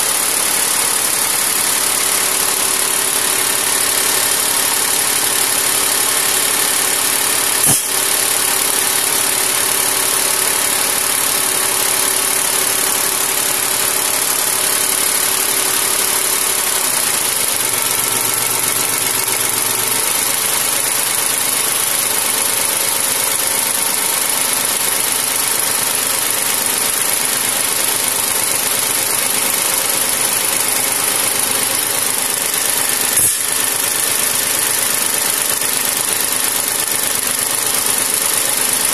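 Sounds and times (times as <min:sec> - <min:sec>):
diesel tractor engine running: 0:00.0 - 0:38.9
short sharp clicks: 0:07.6 - 0:08.1, 0:33.2 - 0:33.5.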